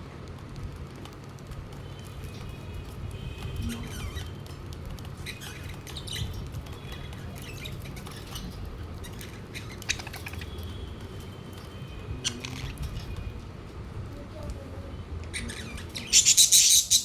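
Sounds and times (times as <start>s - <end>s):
budgerigars chirping: 5.2s - 10.8s, 15.3s - 17.0s.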